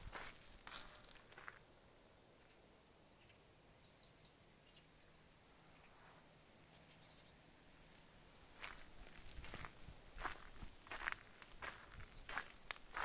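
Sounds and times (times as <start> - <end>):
footsteps: 0.0 - 1.6, 8.6 - 13.0
small birds chirping: 0.0 - 1.6, 2.4 - 7.6, 8.6 - 13.0.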